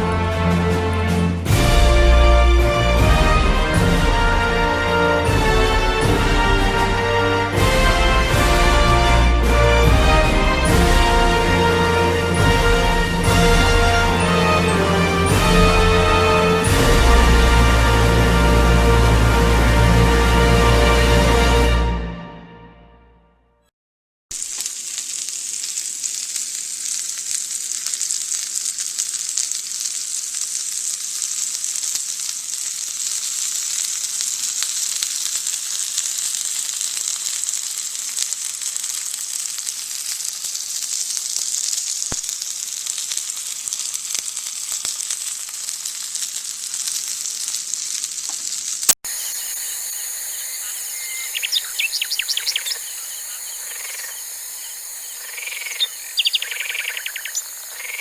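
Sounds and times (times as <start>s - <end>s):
food sizzling in a frying pan: 1.5s - 19.5s, 24.3s - 58.0s
short bird chirps: 49.2s - 57.6s.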